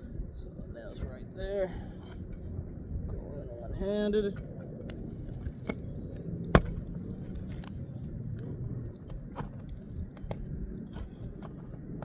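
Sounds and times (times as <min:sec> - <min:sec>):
metal tool scraping under shingle: 0:04.5 - 0:07.9, 0:09.0 - 0:11.8.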